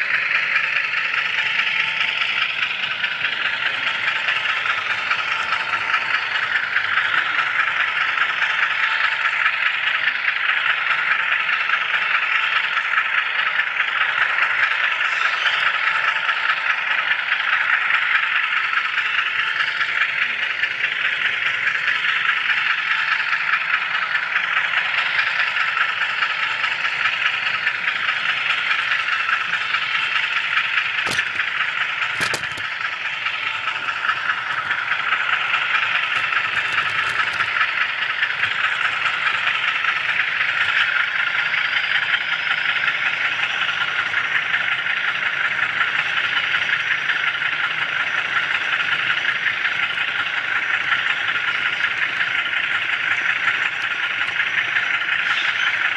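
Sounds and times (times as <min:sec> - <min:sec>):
model train rolling on track: 0:00.0 - 0:55.9
sharp clicks: 0:30.8 - 0:41.0.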